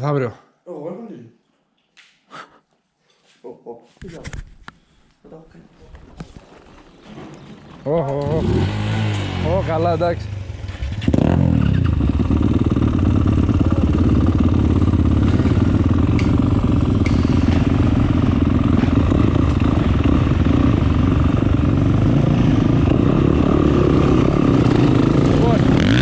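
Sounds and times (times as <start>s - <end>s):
motocross bike engine running: 8.3s - 26.0s.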